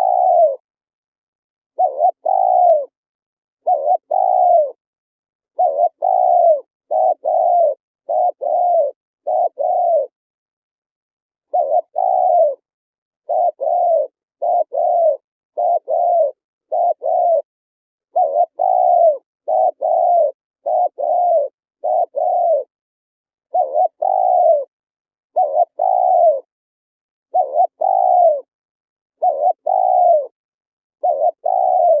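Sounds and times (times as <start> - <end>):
dove cooing: 0.0 - 0.6, 1.8 - 3.0, 3.6 - 4.8, 5.5 - 10.2, 11.4 - 17.5, 18.1 - 22.7, 23.5 - 24.7, 25.3 - 26.5, 27.3 - 28.5, 29.2 - 30.4, 31.0 - 32.0.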